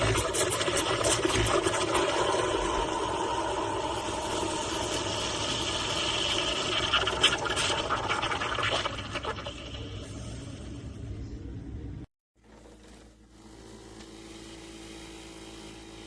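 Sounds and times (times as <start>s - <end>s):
espresso machine hissing: 0.0s - 11.1s.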